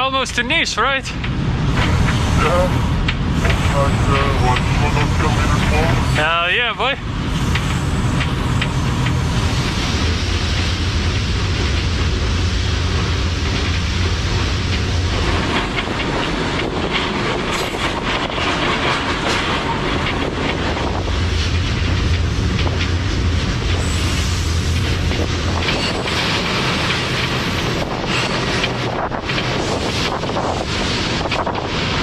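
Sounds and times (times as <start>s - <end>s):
freight train rumbling: 0.0s - 32.0s
wheel clacks over rail joints: 7.4s - 32.0s.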